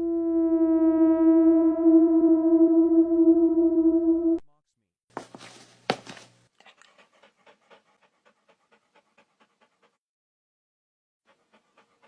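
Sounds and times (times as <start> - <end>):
dog panting: 6.6 - 10.0, 11.3 - 12.0.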